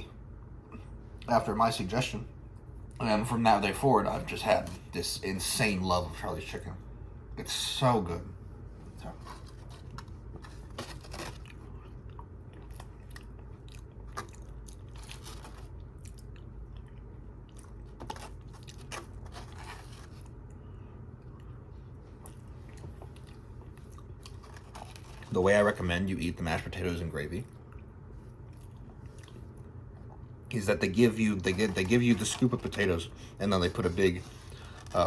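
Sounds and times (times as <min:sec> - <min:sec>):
crunchy bites and chewing: 0:10.9 - 0:20.4.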